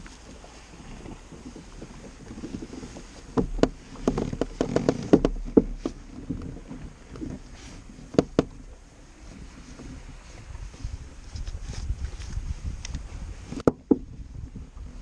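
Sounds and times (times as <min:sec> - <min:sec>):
light wind noise: 0:00.0 - 0:15.0
sharp knocks and clicks: 0:03.3 - 0:06.5, 0:08.1 - 0:08.6, 0:13.6 - 0:14.1.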